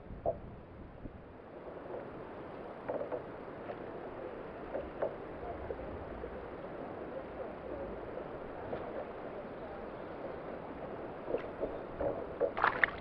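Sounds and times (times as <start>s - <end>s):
water splashing and lapping: 11.2s - 13.0s.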